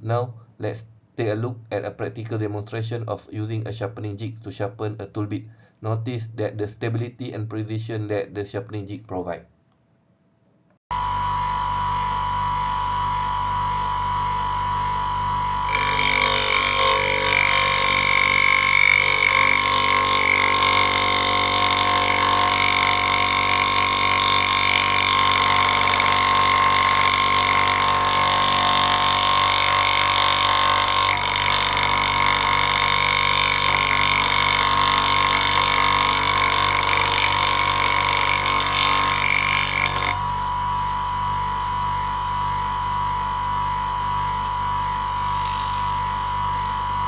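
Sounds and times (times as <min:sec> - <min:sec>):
bench grinder grinding tool bit: 0:12.0 - 0:47.0.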